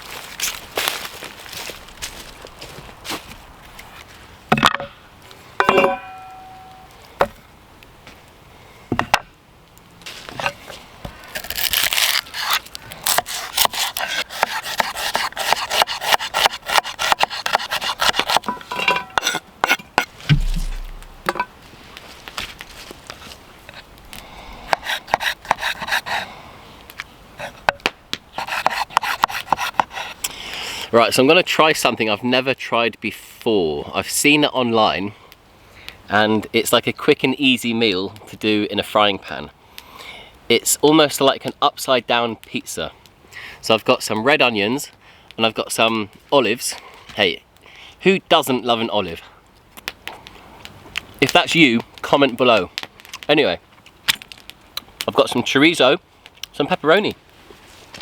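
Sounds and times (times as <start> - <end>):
scraping and rubbing: 11.4 - 21.5.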